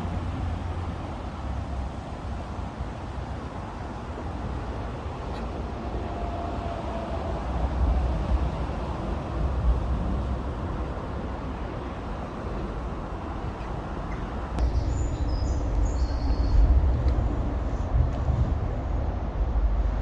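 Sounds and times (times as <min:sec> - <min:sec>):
motorway traffic roar: 0:00.0 - 0:20.0
wind rumbling on microphone: 0:04.6 - 0:20.0
bird chirps: 0:13.6 - 0:16.7.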